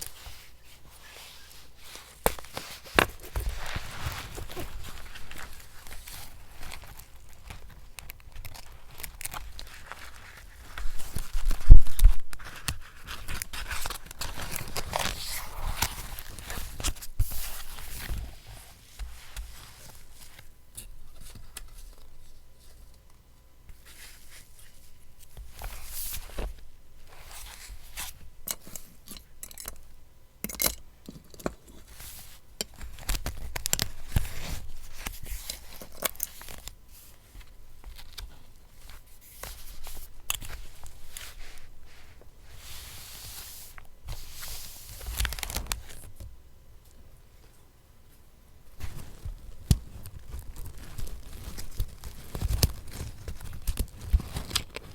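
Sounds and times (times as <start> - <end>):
paper tearing and rustling: 43.2 - 46.1, 48.8 - 54.9.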